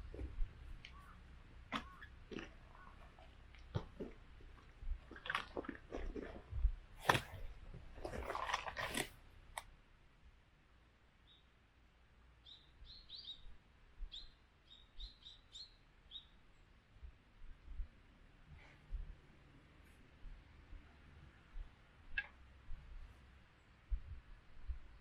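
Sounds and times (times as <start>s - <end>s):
small bird chirping: 12.4s - 13.5s, 14.1s - 16.4s.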